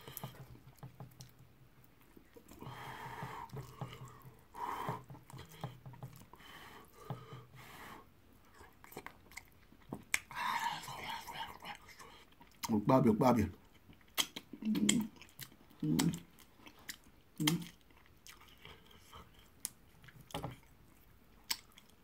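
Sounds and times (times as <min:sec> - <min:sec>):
wet chewing and lip smacks: 0:08.4 - 0:12.8, 0:13.6 - 0:22.0.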